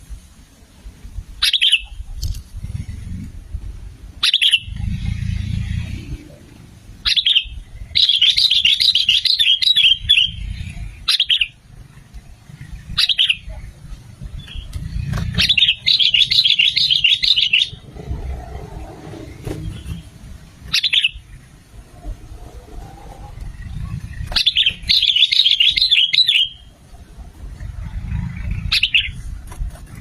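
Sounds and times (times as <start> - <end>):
bird chattering song: 1.4 - 2.4, 4.2 - 6.2, 7.0 - 21.5, 23.5 - 26.7, 28.1 - 29.3
low rumble: 2.2 - 8.0, 17.7 - 25.0
bird call notes: 7.0 - 11.6, 15.4 - 17.9, 19.5 - 21.4, 24.3 - 26.7.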